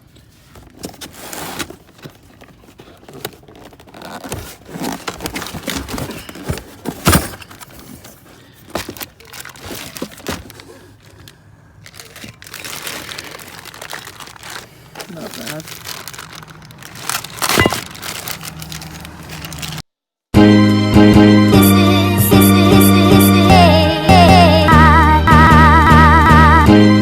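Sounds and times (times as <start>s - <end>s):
packaging crinkling and rustling: 0.0s - 19.9s.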